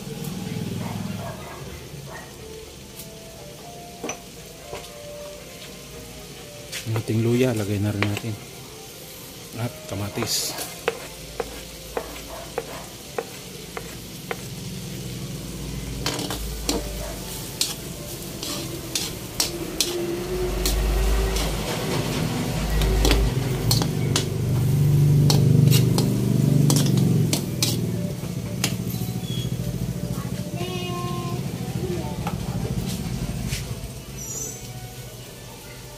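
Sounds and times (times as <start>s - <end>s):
vegetables sizzling in a pot: 0.0s - 35.9s
metal spoon scraping a pot: 18.4s - 20.0s, 23.0s - 24.3s, 25.3s - 27.8s.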